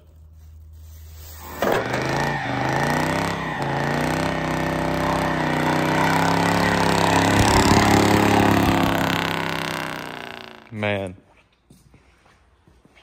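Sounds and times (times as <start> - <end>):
tire spinning on asphalt: 1.2 - 10.8
car engine revving: 1.4 - 10.8.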